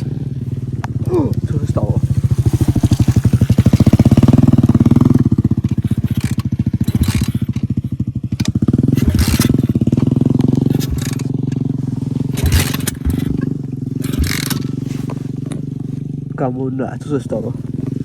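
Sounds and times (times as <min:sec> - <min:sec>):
small motorbike engine running: 0:00.0 - 0:18.0
short knocks: 0:12.2 - 0:15.7.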